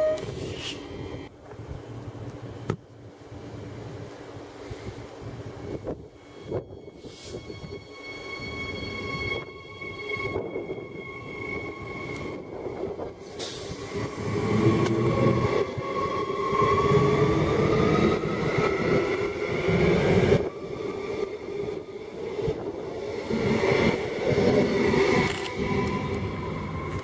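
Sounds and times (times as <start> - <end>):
train wheels rumbling on rails: 0.0 - 27.0
train whine rising in pitch: 6.0 - 27.0.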